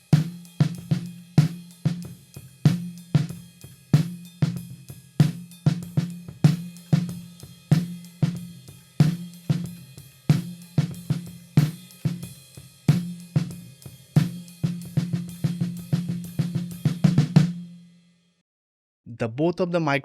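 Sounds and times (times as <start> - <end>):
snare drum playing: 5.2 - 17.8.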